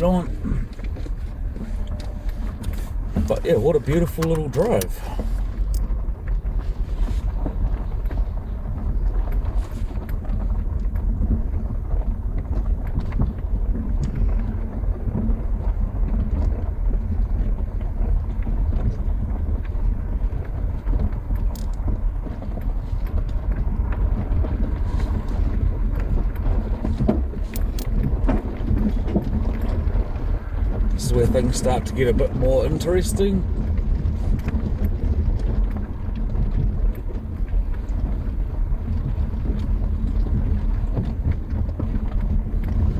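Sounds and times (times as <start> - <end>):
car engine and tyres rumbling: 0.0 - 42.9
small clicks and ticks: 0.0 - 42.9.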